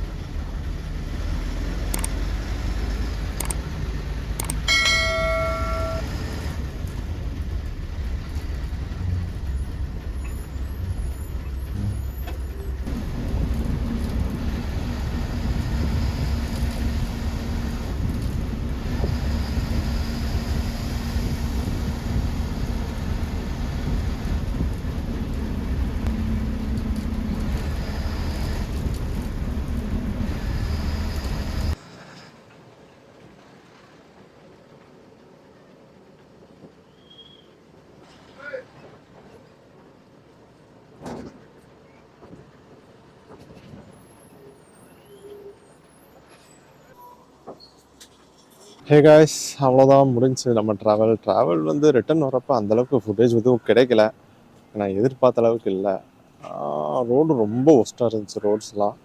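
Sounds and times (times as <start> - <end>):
bus engine and road noise: 0.0 - 36.9, 37.5 - 59.0
bus horn: 4.4 - 6.6.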